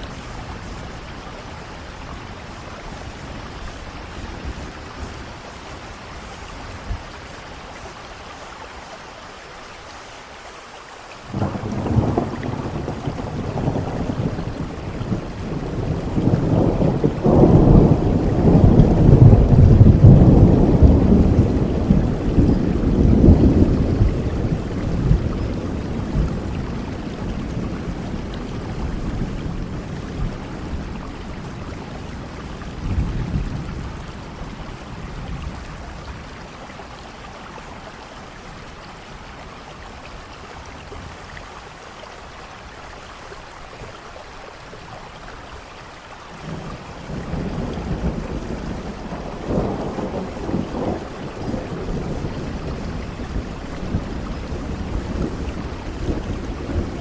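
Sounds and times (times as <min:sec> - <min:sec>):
steady rain: 0:00.0 - 0:57.0
rolling thunder: 0:11.3 - 0:36.4, 0:46.4 - 0:57.0.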